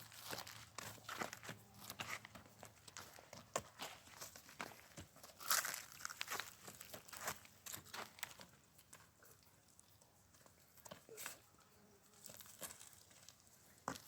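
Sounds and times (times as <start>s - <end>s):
faint rustling and crackling: 0.0s - 14.0s.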